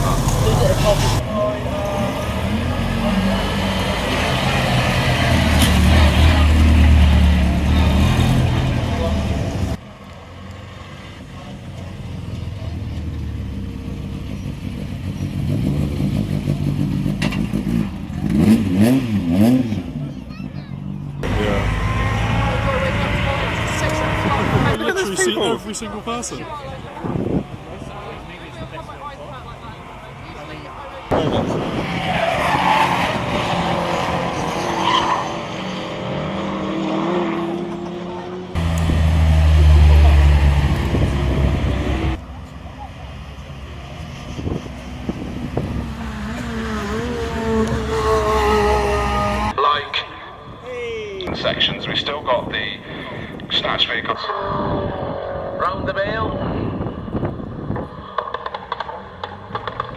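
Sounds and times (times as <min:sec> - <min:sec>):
rally car engine revving: 0:00.0 - 0:50.6, 0:51.2 - 0:59.9
tyres squealing on tarmac: 0:31.8 - 0:35.6.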